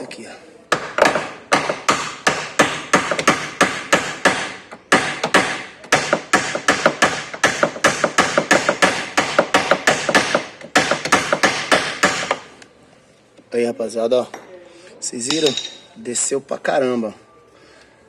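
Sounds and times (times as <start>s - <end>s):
hammer striking metal pin: 15.3s - 15.9s.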